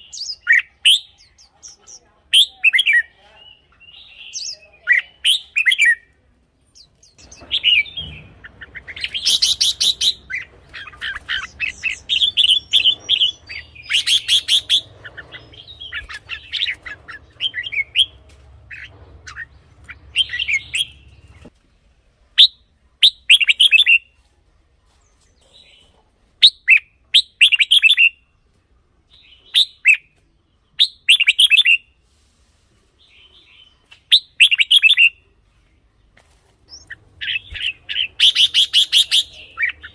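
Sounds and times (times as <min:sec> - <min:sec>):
bulbul singing warbled phrases: 0:00.0 - 0:06.1, 0:06.7 - 0:21.5, 0:36.7 - 0:39.9.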